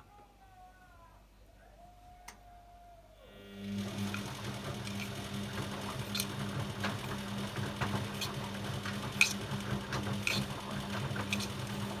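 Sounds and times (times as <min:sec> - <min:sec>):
washing machine motor hum: 0:03.3 - 0:12.0.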